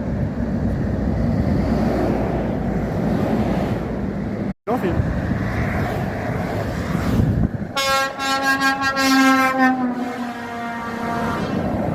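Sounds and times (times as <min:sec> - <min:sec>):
traffic rumble: 0:00.0 - 0:11.9
truck air horn blast: 0:07.7 - 0:11.7.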